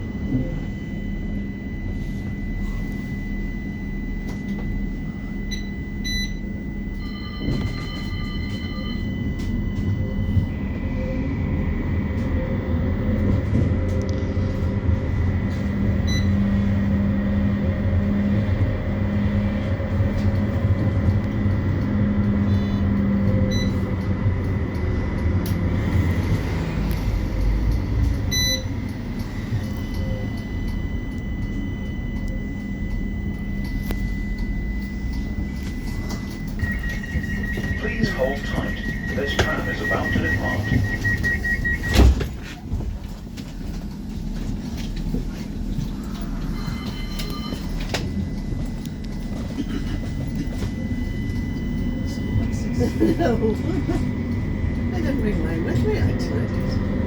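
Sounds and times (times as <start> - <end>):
high whine: 0.0 - 57.0
tram cabin hum and rumble: 0.0 - 57.0
short electronic beeps: 5.4 - 10.2, 28.3 - 42.2, 46.5 - 48.4.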